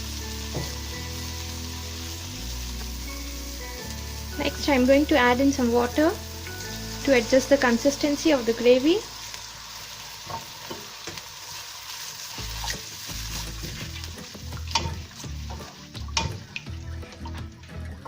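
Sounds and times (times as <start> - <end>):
gravy sizzling in a pan: 0.0 - 16.6
spoon knocking against pan: 14.7 - 16.5.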